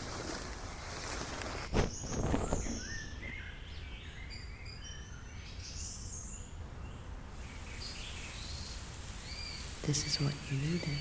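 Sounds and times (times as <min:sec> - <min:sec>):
small birds chirping: 0:00.9 - 0:11.0
soft even hiss: 0:07.3 - 0:11.0.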